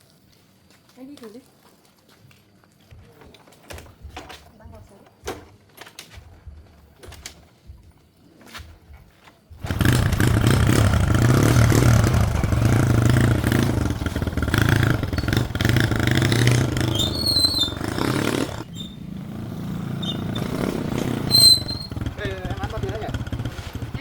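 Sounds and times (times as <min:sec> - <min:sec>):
small motorbike engine running: 0:09.6 - 0:24.0.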